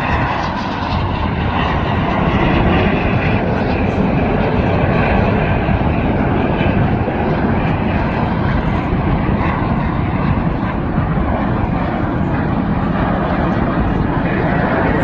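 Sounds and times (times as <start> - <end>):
jets flying overhead: 0.0 - 15.0.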